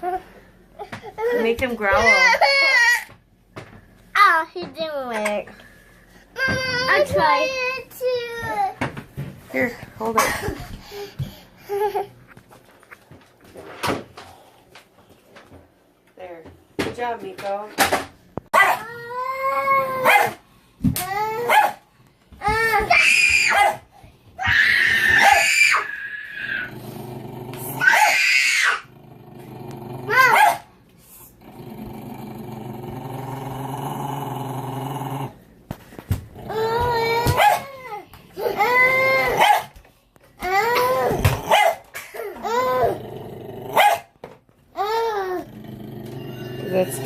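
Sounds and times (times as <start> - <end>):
dog barking: 18.5 - 18.8, 20.0 - 20.4, 21.5 - 21.8, 23.5 - 23.8, 30.2 - 30.7, 37.3 - 37.7, 39.3 - 39.7, 41.4 - 41.9, 43.8 - 44.1
dog growling: 24.9 - 35.5, 36.3 - 37.9, 42.2 - 44.1, 44.8 - 47.0.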